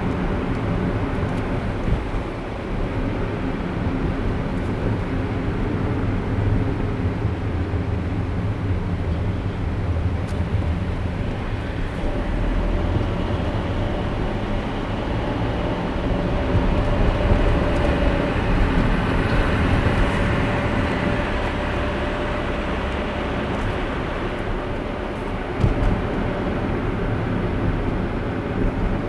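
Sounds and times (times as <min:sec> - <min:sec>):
car road and tyre noise: 0:00.0 - 0:29.0.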